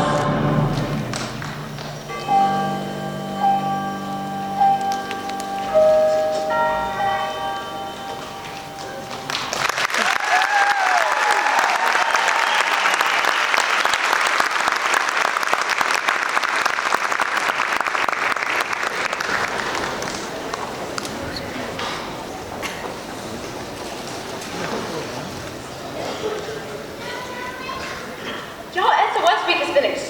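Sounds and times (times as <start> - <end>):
audience applauding: 0.0 - 2.2, 8.5 - 26.8
music: 0.0 - 9.6
person cheering: 9.9 - 12.8.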